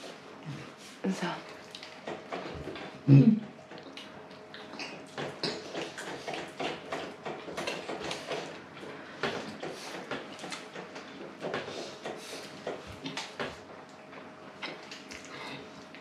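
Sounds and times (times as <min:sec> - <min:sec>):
person chewing and lip-smacking: 0:03.7 - 0:06.4.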